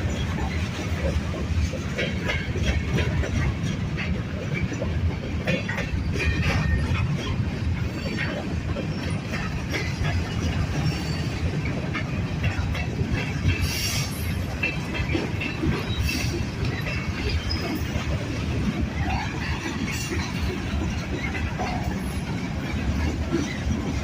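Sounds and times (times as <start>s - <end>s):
freight train rumbling past: 0.0s - 24.0s
wheels clicking over rails: 0.0s - 24.0s.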